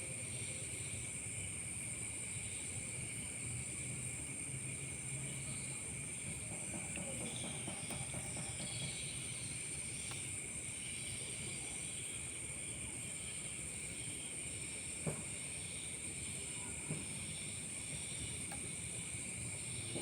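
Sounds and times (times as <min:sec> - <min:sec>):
night insects trilling: 0:00.0 - 0:20.0.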